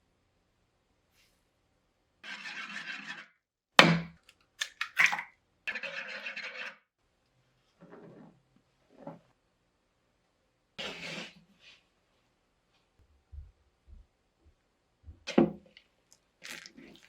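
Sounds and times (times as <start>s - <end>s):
dough scraping and rubbing: 2.2s - 3.3s, 5.7s - 6.8s, 7.7s - 9.3s, 10.8s - 11.9s.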